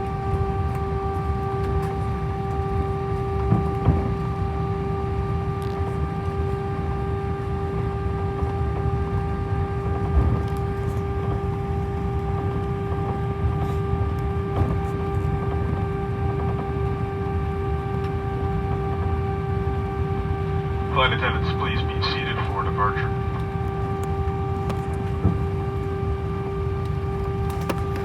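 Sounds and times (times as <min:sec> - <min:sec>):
aircraft engines humming: 0:00.0 - 0:28.0.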